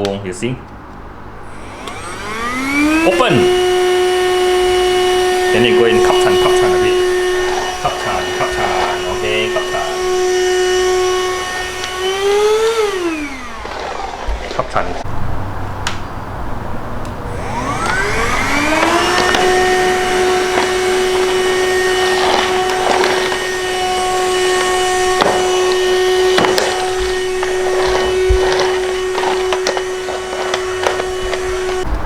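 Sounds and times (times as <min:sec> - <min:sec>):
handheld vacuum cleaner motor: 0:01.5 - 0:15.0, 0:17.3 - 0:31.9
clicks and crackles of debris: 0:17.9 - 0:32.0.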